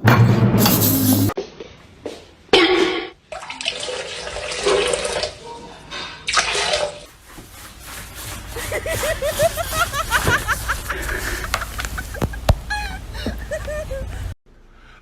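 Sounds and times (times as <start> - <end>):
water running or splashing: 6.3 - 8.7.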